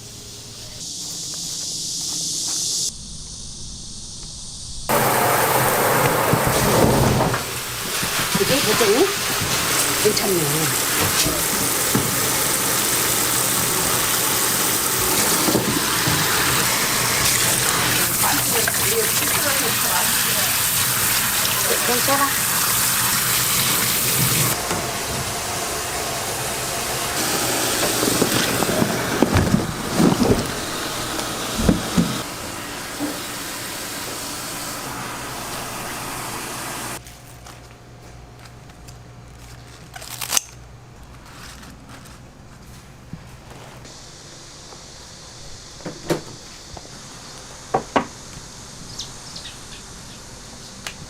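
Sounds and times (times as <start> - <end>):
food sizzling in oil: 7.4 - 37.0.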